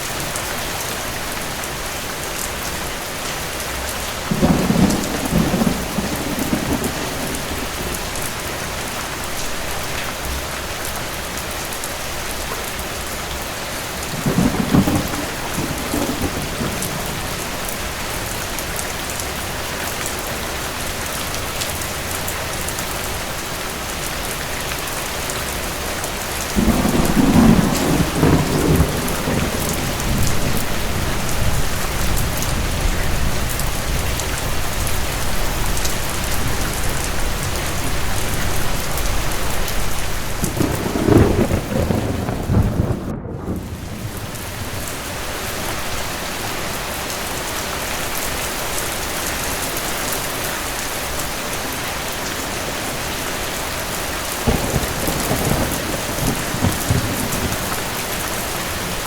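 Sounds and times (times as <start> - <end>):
heavy rain: 0.0 - 59.0
thunder rumbling: 4.2 - 9.9, 14.0 - 18.7, 26.5 - 46.1, 52.7 - 59.0.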